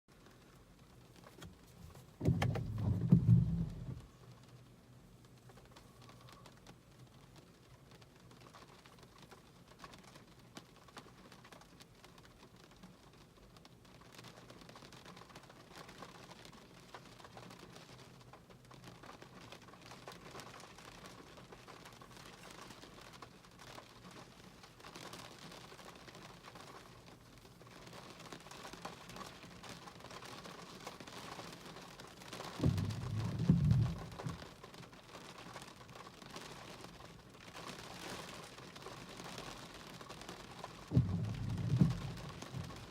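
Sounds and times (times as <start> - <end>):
rain pattering: 0.1 - 42.9
low rumble: 1.8 - 4.2, 32.6 - 34.5, 40.9 - 42.9.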